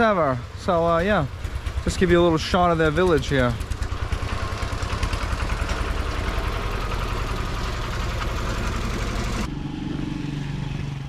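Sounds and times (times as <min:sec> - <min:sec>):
dirt bike engine idling: 0:00.0 - 0:09.5.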